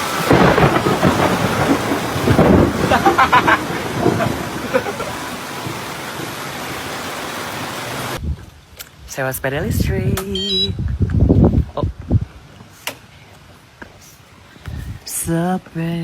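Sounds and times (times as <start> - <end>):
heavy rain falling: 0.0 - 8.2
thunderclap rumbling: 0.0 - 8.4.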